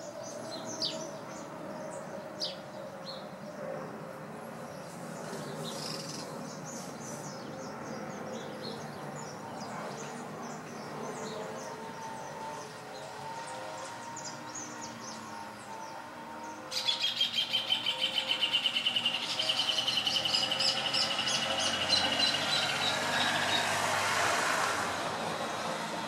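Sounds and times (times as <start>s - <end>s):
vehicle passing: 4.9s - 26.0s
small bird chirping: 16.8s - 23.6s.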